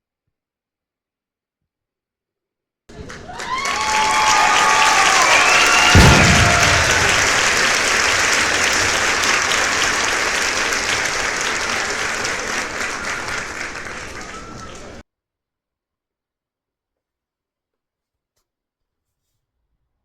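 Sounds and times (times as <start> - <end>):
applause: 2.9 - 15.0.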